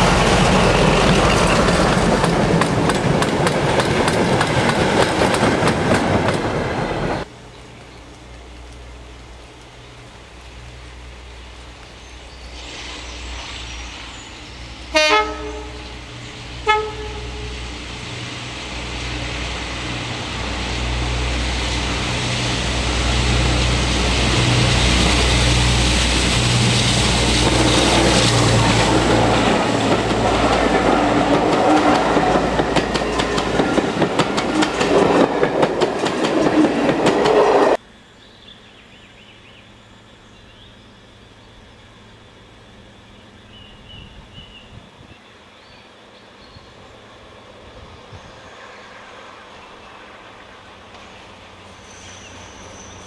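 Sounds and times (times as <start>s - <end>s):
wheels clicking over rail joints: 0.0s - 12.0s, 26.0s - 37.7s
locomotive engine passing: 0.0s - 37.8s
locomotive horn blasts: 14.9s - 17.7s.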